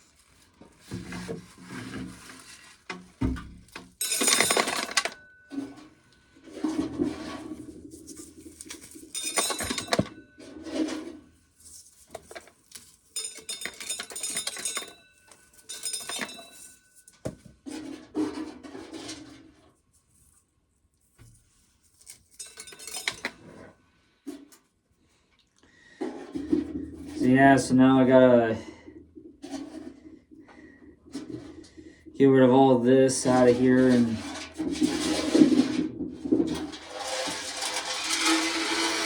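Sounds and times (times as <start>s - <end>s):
corn kernels clattering into container: 2.2s - 5.8s, 6.8s - 11.2s, 36.3s - 39.0s.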